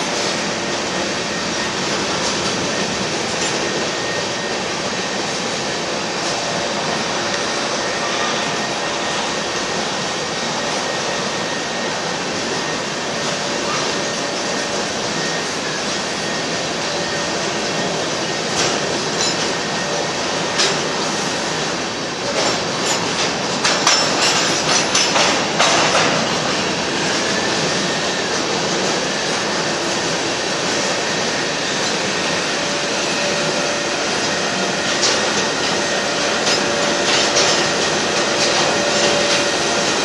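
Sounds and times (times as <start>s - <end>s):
train wheels on rails: 0.0s - 40.0s
sharp clanks and rattles: 22.4s - 26.4s.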